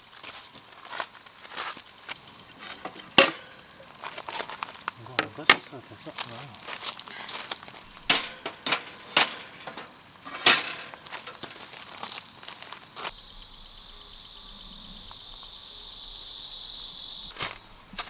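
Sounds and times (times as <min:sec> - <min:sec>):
insects buzzing high-pitched: 0:00.0 - 0:18.0
lower insect buzz: 0:10.9 - 0:18.0.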